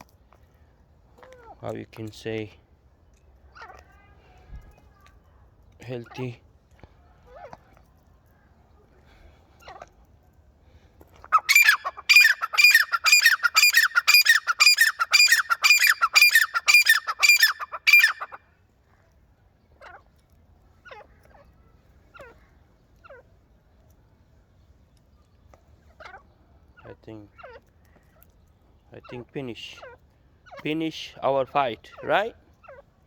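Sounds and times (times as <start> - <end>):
francolin calling: 11.3 - 18.4.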